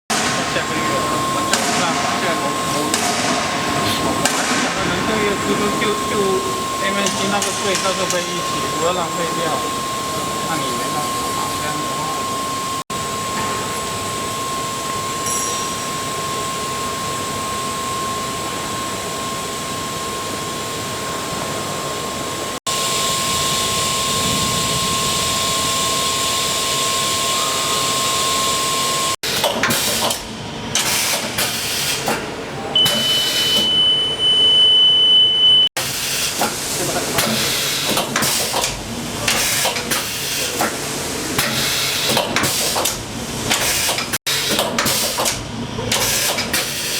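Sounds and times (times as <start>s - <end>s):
high whine: 0.1s - 29.2s
milling machine hiss and high tone: 0.2s - 30.1s.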